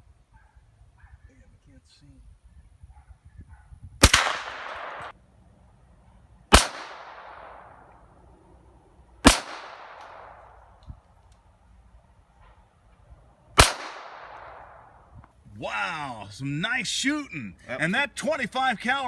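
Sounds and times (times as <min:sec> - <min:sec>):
gunshots with echo: 0:04.0 - 0:05.1, 0:06.5 - 0:07.8, 0:09.2 - 0:10.5, 0:13.6 - 0:14.9.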